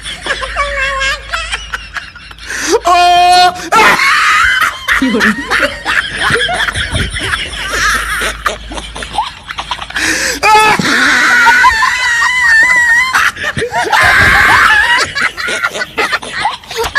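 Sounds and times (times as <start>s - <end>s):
laughter-like vocal sounds: 0.0s - 16.9s
person screaming: 10.4s - 13.2s, 13.8s - 15.1s.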